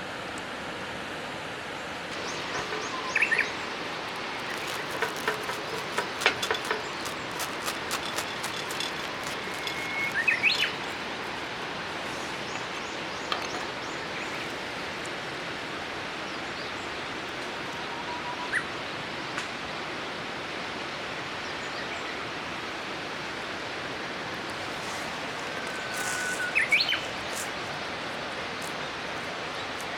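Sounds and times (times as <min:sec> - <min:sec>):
river rushing: 0:00.0 - 0:16.4, 0:22.3 - 0:29.9
small birds chirping: 0:02.2 - 0:14.5.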